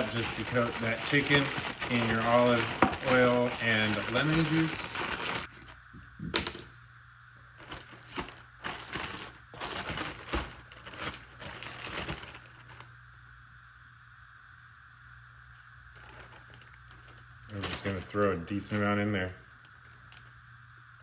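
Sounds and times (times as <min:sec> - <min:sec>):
plastic bag crinkling: 0:00.0 - 0:05.7, 0:07.6 - 0:12.9, 0:15.9 - 0:19.0
faint steady hum: 0:00.0 - 0:21.0.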